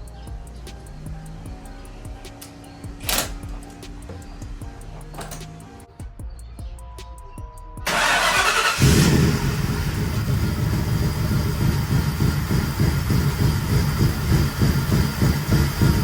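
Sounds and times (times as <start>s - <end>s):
car engine idling unevenly: 0.0s - 5.9s, 7.9s - 16.0s
car starter cranking: 2.4s - 3.8s, 7.9s - 16.0s.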